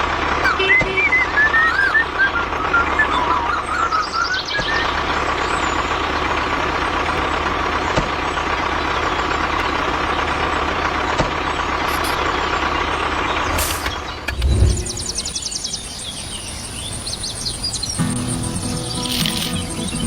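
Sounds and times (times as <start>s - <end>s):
warbling whistle-like tone: 1.0s - 4.9s.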